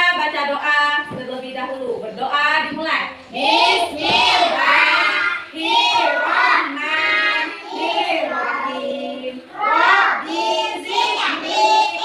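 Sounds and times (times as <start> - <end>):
children chanting a prayer: 3.3 - 12.0.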